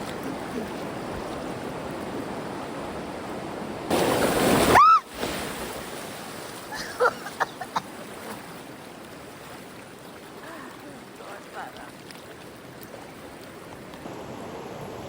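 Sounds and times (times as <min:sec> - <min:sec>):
river water rushing: 0:00.0 - 0:15.0
loud splashing: 0:03.9 - 0:08.7.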